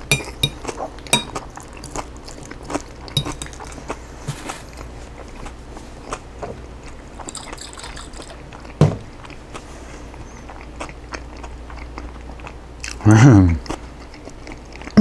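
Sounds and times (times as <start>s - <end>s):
utensil clicking on dish: 0.0s - 1.4s, 3.1s - 3.8s
chewing: 0.0s - 13.0s, 13.6s - 15.0s
heavy thump: 8.8s - 9.1s.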